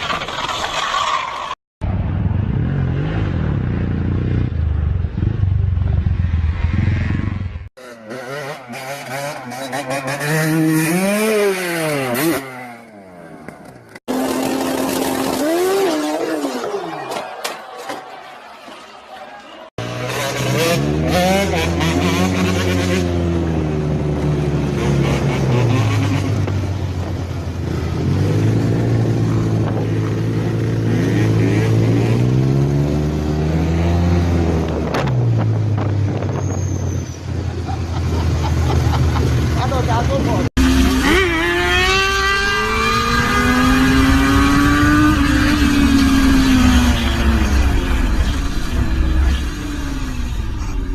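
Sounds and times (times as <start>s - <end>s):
motorcycle engine at high revs: 2.7s - 13.0s, 14.0s - 16.6s, 19.8s - 36.2s, 38.5s - 50.8s
motorcycle engine under throttle: 14.1s - 16.2s.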